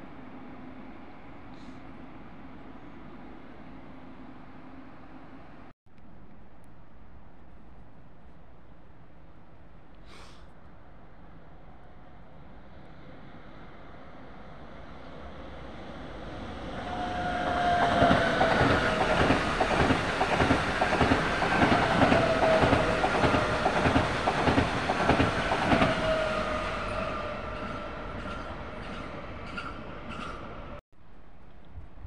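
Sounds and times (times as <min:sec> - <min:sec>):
two-pitched train whine: 0:12.3 - 0:30.8.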